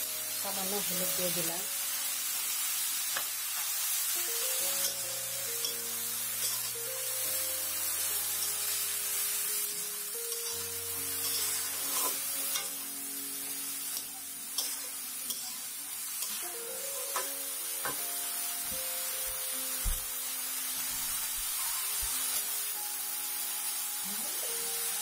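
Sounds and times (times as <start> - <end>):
soft background music: 0.0 - 25.0
vegetables sizzling in oil: 0.0 - 25.0
metal spatula scraping pan: 11.2 - 12.7.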